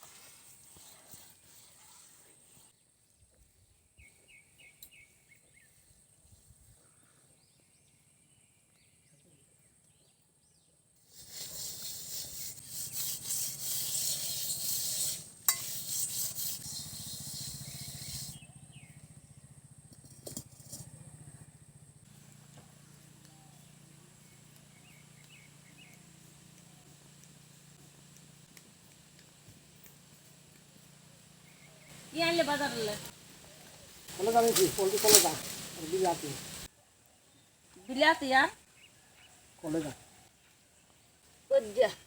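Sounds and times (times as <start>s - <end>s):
rough rubbing and scraping: 11.1s - 18.4s, 27.0s - 36.7s.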